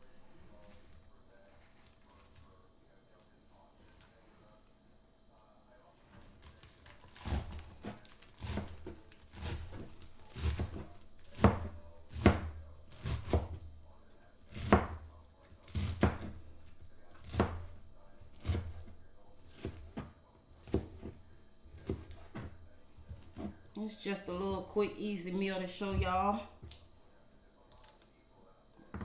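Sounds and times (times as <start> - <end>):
knife chopping on cutting board: 6.8 - 13.9, 14.5 - 23.6.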